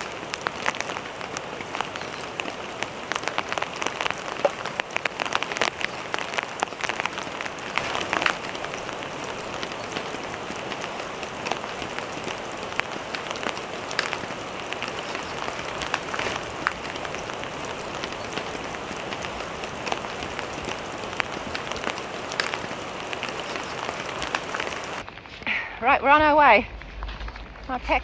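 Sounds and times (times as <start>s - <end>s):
steady rain hiss: 0.0s - 25.1s
raindrops clicking close by: 0.0s - 25.2s.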